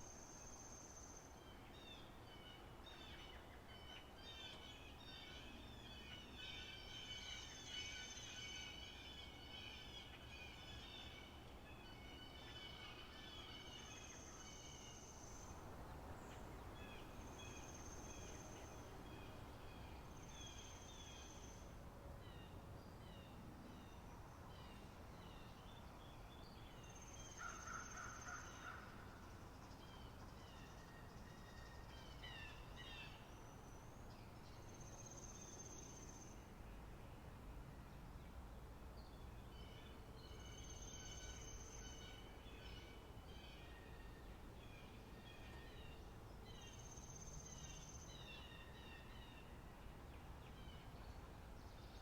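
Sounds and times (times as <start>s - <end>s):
birds chirping and twittering: 0.2s - 36.4s.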